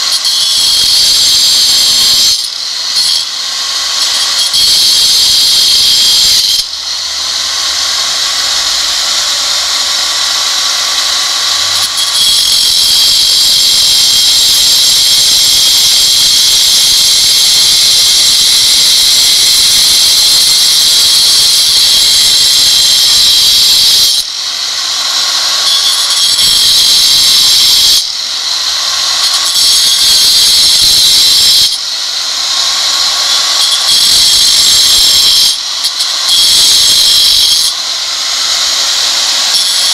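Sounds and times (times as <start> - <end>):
angle grinder cutting stone: 0.0 - 39.9.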